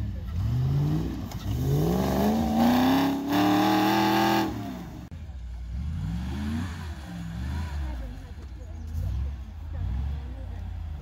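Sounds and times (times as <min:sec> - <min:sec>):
vehicle engine revving hard: 0:00.0 - 0:05.1, 0:05.7 - 0:08.2.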